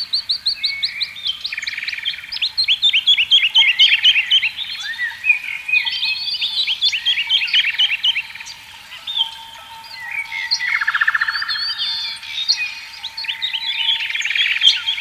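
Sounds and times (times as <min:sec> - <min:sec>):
songbirds chirping and trilling: 0:00.0 - 0:15.0
thin steady tone: 0:03.3 - 0:15.0.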